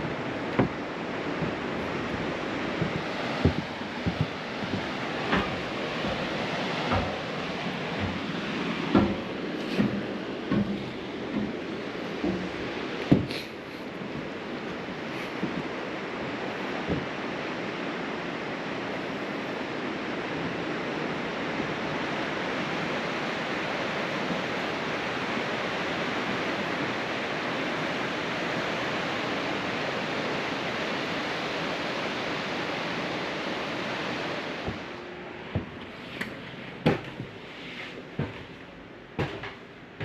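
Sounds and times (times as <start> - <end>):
steady rushing noise: 0.0 - 40.0
sharp clicks and knocks: 0.5 - 13.5.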